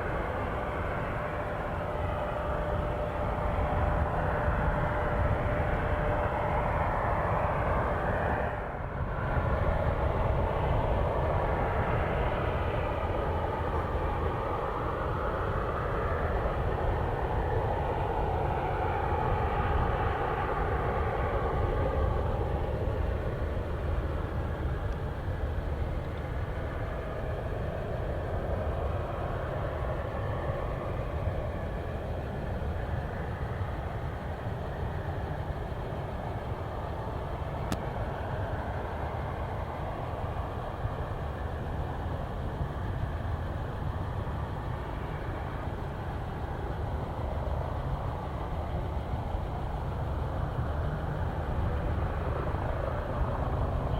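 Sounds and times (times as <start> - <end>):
faint steady whine: 0.0 - 53.9
jet engines running: 9.4 - 53.9.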